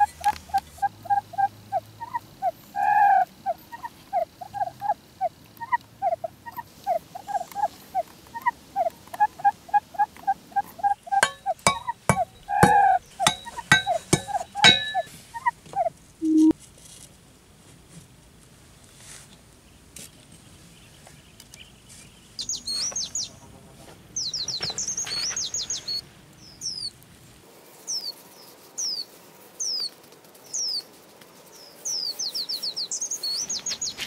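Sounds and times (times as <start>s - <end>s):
animal calling repeated notes: 0.0s - 16.5s.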